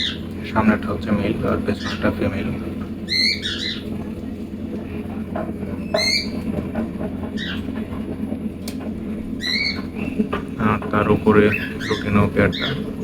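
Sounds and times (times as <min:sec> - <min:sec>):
cockatiels squawking: 0:00.0 - 0:00.8, 0:01.4 - 0:04.4, 0:05.6 - 0:08.0, 0:09.3 - 0:13.0
steady low hum: 0:00.0 - 0:13.0.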